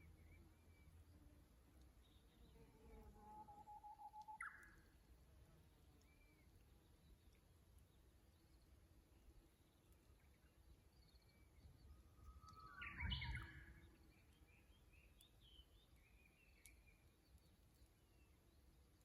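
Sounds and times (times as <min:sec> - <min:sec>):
faint bird chirps: 0:02.0 - 0:05.0, 0:09.7 - 0:18.6
bush warbler singing: 0:12.3 - 0:17.5.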